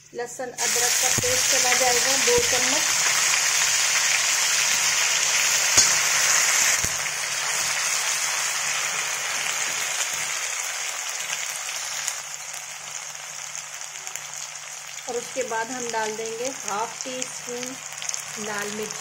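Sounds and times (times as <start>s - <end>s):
paste sizzling in hot oil: 0.6s - 19.0s.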